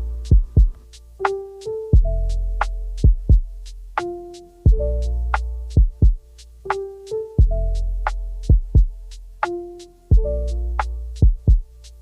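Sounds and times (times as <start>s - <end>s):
held keyboard notes: 0.0s - 12.0s
deep kick drums: 0.2s - 0.8s, 2.0s - 2.4s, 3.0s - 3.7s, 4.7s - 5.0s, 5.7s - 6.3s, 7.4s - 7.8s, 8.4s - 9.1s, 10.1s - 10.4s, 11.2s - 11.7s
hi-hat ticks: 6.0s - 6.8s.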